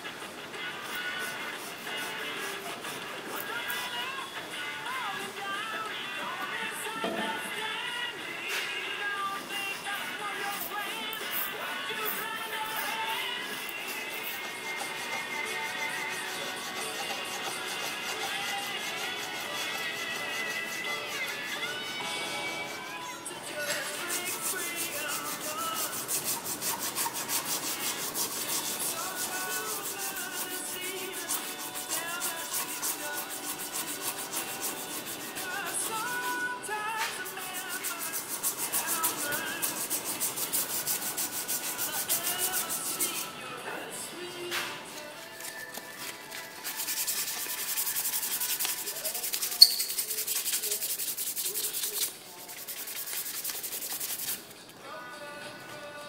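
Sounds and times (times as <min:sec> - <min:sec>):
abrasive rubbing on wood: 0:00.6 - 0:04.1, 0:11.3 - 0:43.4, 0:45.4 - 0:54.5.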